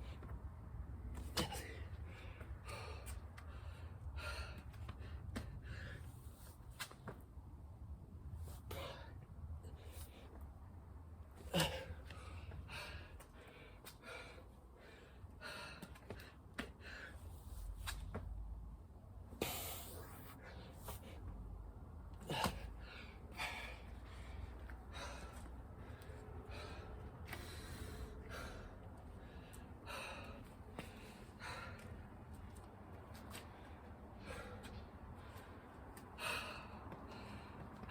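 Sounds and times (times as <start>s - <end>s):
person breathing hard: 1.4s - 6.5s, 11.5s - 17.7s, 22.2s - 32.3s, 33.3s - 37.9s.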